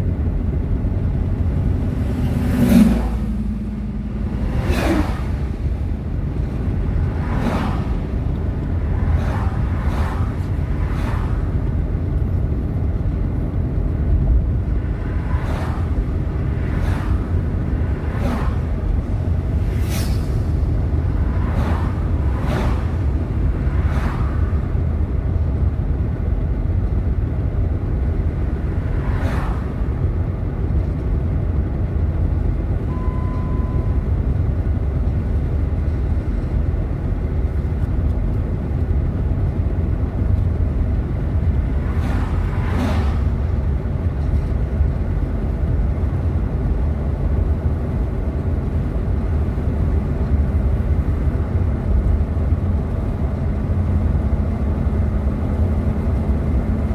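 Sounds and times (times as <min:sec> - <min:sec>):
car interior rumble: 0:00.0 - 0:56.9
brief whooshes: 0:02.2 - 0:05.8, 0:19.6 - 0:20.8
short beep: 0:32.8 - 0:34.4.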